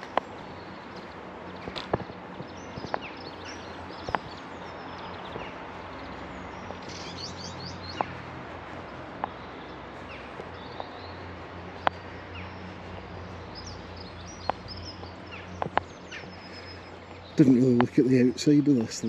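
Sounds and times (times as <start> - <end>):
outdoor background hum: 0.0 - 19.0
small birds chirping: 0.0 - 19.0
sharp taps: 0.9 - 3.2, 3.9 - 4.4, 7.9 - 8.2, 9.1 - 9.4, 11.8 - 12.1, 14.4 - 16.0, 17.7 - 18.0.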